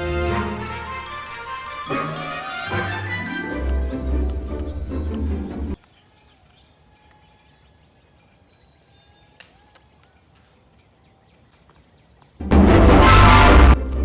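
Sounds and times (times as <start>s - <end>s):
loud sound: 12.4s - 13.9s.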